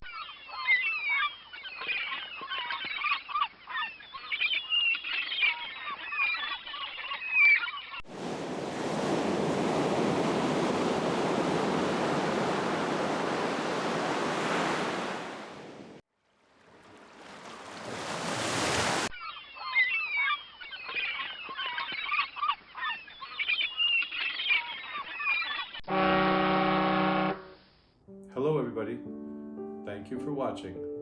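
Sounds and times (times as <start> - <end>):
ocean waves washing: 8.0 - 16.0, 16.6 - 19.1.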